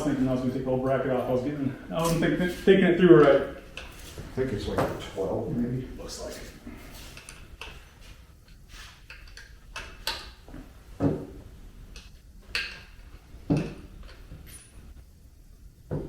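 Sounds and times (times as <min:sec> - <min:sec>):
hand tools clinking: 0:13.6 - 0:14.8.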